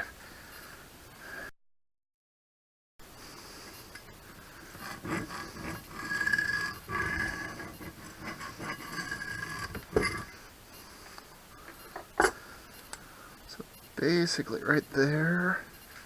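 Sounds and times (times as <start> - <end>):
tool scratching on steel plate: 4.6 - 10.4.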